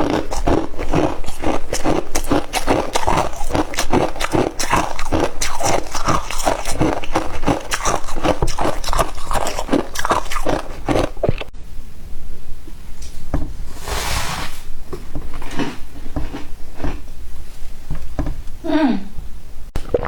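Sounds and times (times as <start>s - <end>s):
crunching and chewing ice: 0.0s - 11.5s, 15.0s - 17.2s.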